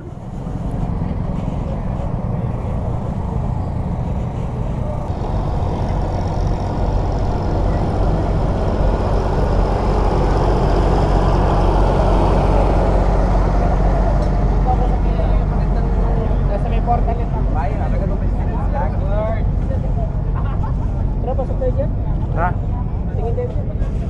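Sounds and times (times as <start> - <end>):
vehicle noise rumble: 0.0 - 24.0.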